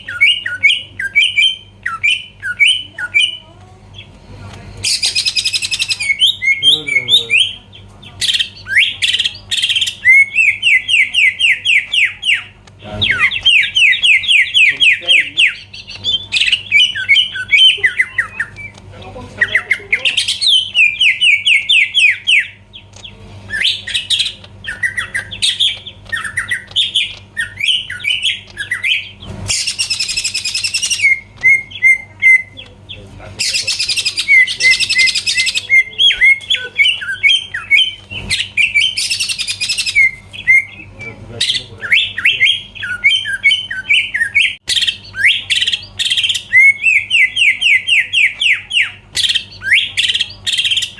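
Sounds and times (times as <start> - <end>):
bird singing chirps and trills: 0.0 - 4.2, 4.8 - 50.9.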